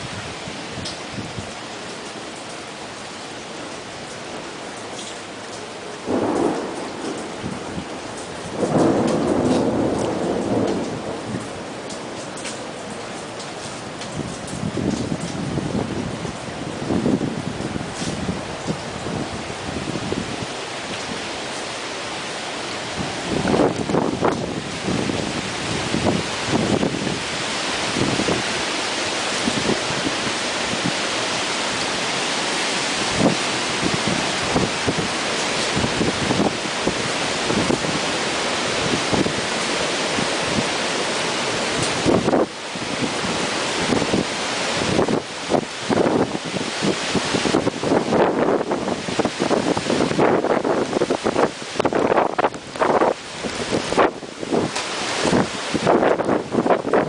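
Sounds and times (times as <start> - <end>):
steady rain: 0.0 - 57.0
thunder rolling: 6.1 - 11.5
storm wind gusting: 6.1 - 11.7, 22.7 - 57.0.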